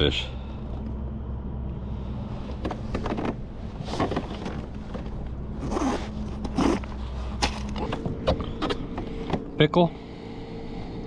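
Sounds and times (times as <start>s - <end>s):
steady low hum: 0.0s - 11.0s
scraping and rustling handling: 2.4s - 8.8s.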